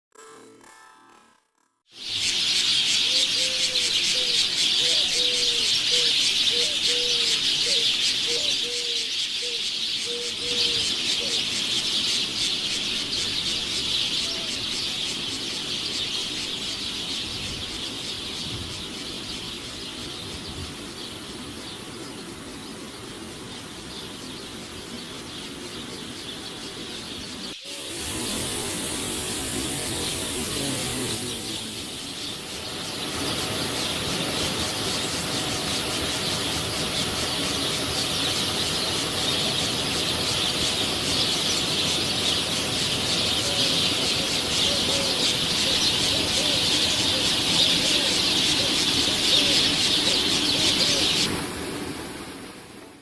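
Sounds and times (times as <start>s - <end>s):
waterfall rushing: 27.6s - 53.0s.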